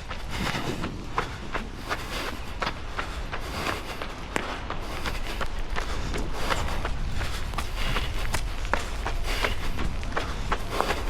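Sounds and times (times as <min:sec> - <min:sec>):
running footsteps on wet pavement: 0:00.0 - 0:11.0
steady low rumble: 0:00.0 - 0:11.0.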